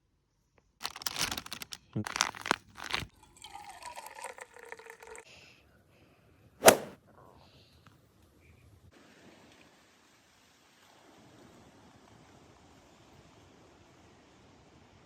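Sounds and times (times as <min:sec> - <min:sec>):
plastic wrappers crinkling: 0:00.8 - 0:03.1
sharp crack: 0:06.6 - 0:07.0.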